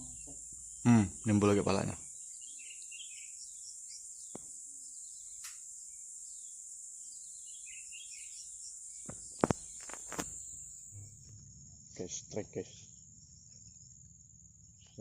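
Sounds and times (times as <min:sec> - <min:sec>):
bird chirps: 0:00.0 - 0:13.9
insect chorus: 0:00.0 - 0:15.0.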